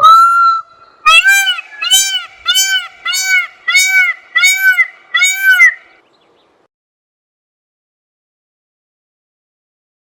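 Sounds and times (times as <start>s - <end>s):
peacock calling: 0.0s - 6.0s.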